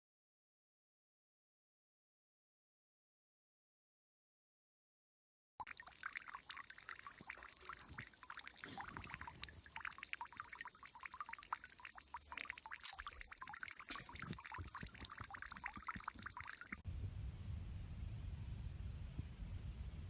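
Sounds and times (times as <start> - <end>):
water trickling: 5.6 - 16.8.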